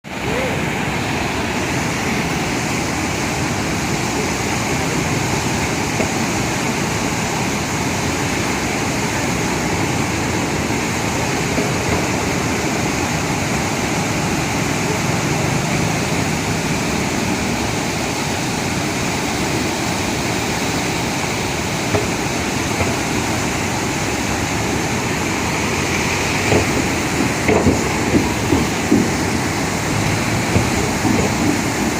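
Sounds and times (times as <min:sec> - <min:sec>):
rushing water: 0:00.0 - 0:31.9
sharp knocks or splashes: 0:21.8 - 0:23.6, 0:25.5 - 0:31.9.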